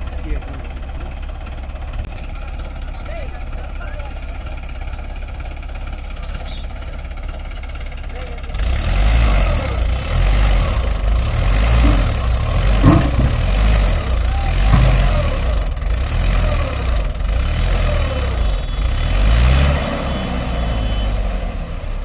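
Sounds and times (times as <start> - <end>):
heavy diesel engine straining: 0.0 - 22.0
sharp knock: 11.8 - 14.0, 14.6 - 15.6.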